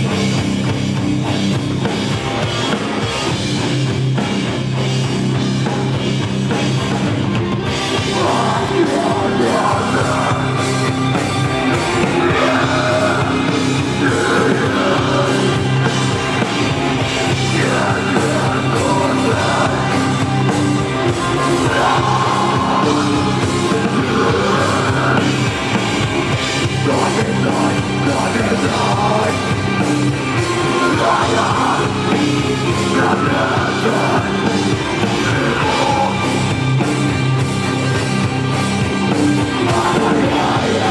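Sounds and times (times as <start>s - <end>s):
live rock band playing: 0.0s - 40.9s
person singing and shouting: 8.0s - 16.5s, 17.2s - 25.7s, 26.6s - 36.6s, 39.5s - 40.9s.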